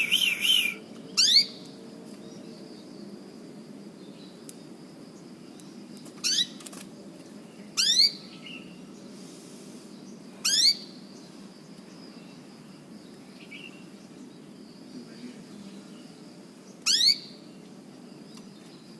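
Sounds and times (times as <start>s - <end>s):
canary chirping calls: 0.0s - 1.6s, 7.8s - 8.7s, 16.8s - 17.3s.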